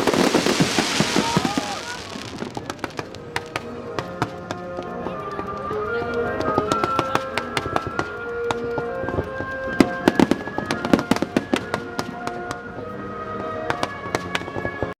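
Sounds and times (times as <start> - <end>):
fireworks crackling: 0.0 - 5.7, 6.4 - 12.7
music: 0.0 - 15.0.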